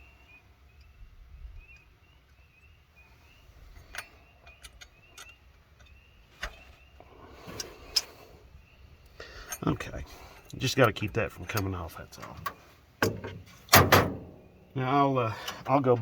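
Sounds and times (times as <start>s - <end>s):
faint high chirp: 0.0s - 7.6s
small sharp metal clicks: 3.8s - 6.6s.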